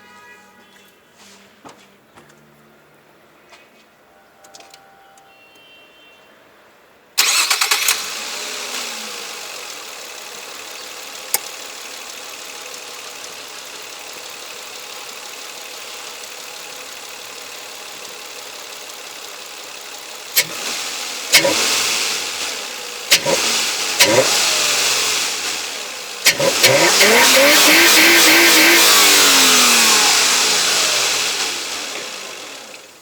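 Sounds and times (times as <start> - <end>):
car engine starting and idling: 7.2 - 33.0.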